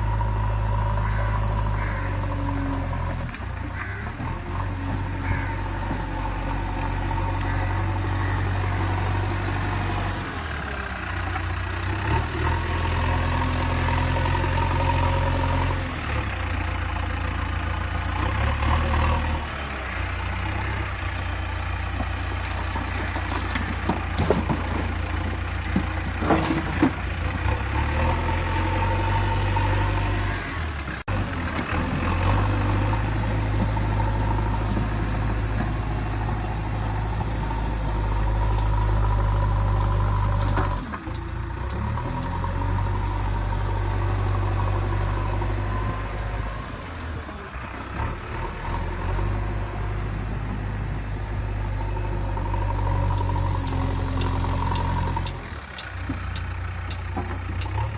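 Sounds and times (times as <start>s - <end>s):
backhoe diesel engine running: 0.0s - 57.9s
knocks and clanks: 22.8s - 25.0s, 25.7s - 27.0s.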